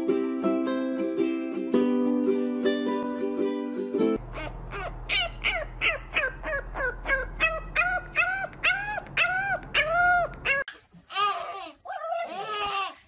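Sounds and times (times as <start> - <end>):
puppy yipping and howling: 4.4 - 10.7.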